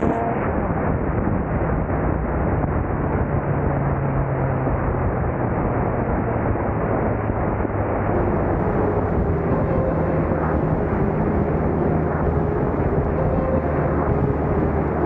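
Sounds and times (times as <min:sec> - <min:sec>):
heavy wind and road rumble: 0:00.0 - 0:15.0
car engine running: 0:08.2 - 0:15.0.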